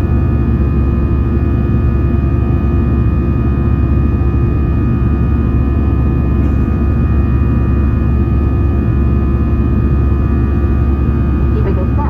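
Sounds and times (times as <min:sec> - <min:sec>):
jet engine roar: 0:00.0 - 0:12.0
steady hums and whines: 0:00.0 - 0:12.0
deep cabin rumble: 0:04.6 - 0:12.0.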